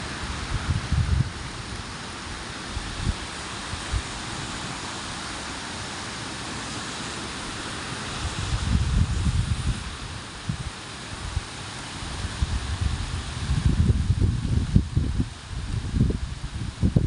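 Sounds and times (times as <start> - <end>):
wind buffeting microphone: 0.0 - 1.8, 2.7 - 4.2, 8.2 - 17.0
heavy rain hissing: 0.0 - 17.0.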